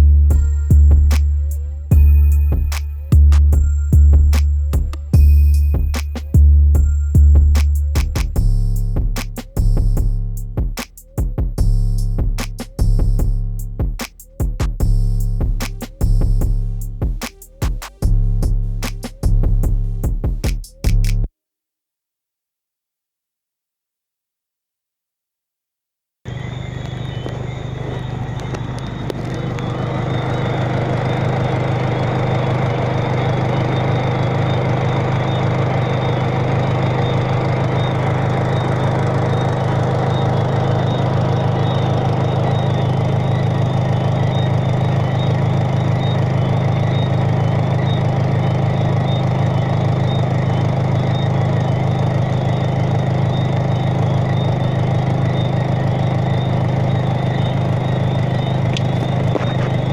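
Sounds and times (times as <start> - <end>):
low mechanical hum: 26.3 - 59.9.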